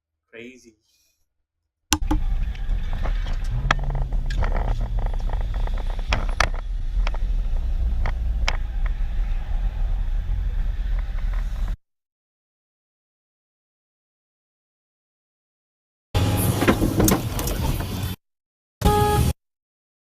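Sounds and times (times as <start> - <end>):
sharp knocks: 1.9 - 2.2
car engine and road noise: 2.0 - 11.8, 16.2 - 18.2, 18.8 - 19.3
low hum: 2.0 - 11.8.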